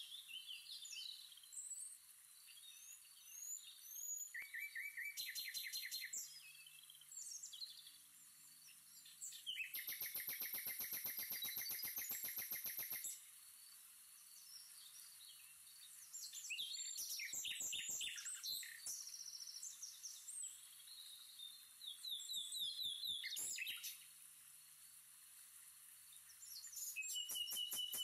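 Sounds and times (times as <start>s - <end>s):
birds chirping: 14.3s - 24.0s, 26.3s - 28.0s.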